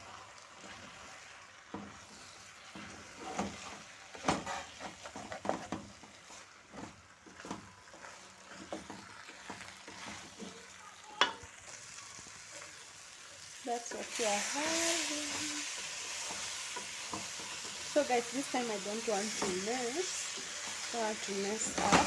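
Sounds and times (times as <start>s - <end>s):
rice sizzling: 0.0s - 22.0s
spoon scraping a pot: 0.6s - 10.6s.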